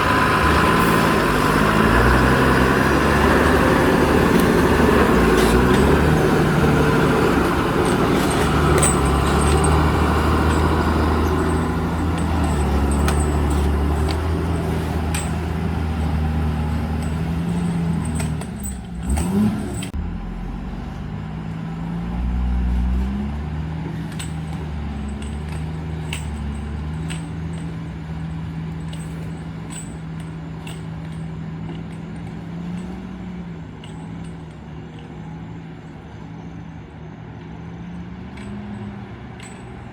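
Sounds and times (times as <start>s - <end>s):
diesel engine running: 0.0s - 39.9s
metallic clinks and rattles: 2.1s - 20.0s, 23.9s - 35.2s, 38.3s - 39.9s.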